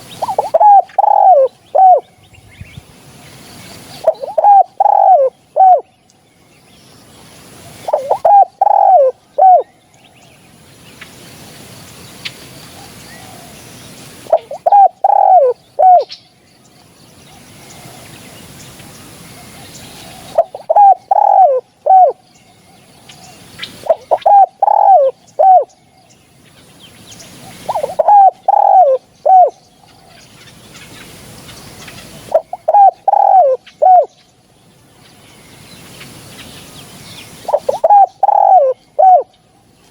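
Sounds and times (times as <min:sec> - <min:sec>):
dove cooing: 0:00.0 - 0:02.0, 0:04.0 - 0:05.9, 0:07.6 - 0:09.7, 0:14.3 - 0:16.1, 0:19.4 - 0:22.2, 0:23.8 - 0:25.8, 0:27.4 - 0:30.2, 0:32.0 - 0:34.1, 0:37.4 - 0:39.4.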